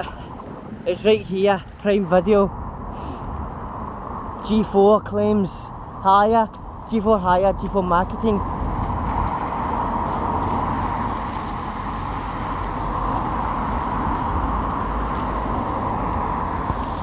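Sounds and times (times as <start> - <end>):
tyres hissing on wet road: 8.4 - 17.0.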